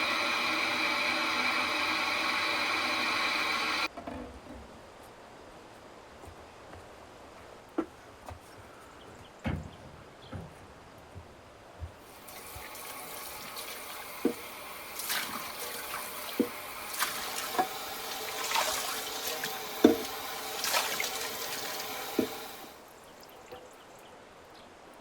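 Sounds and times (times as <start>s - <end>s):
water running: 0.0s - 3.9s, 12.0s - 23.5s.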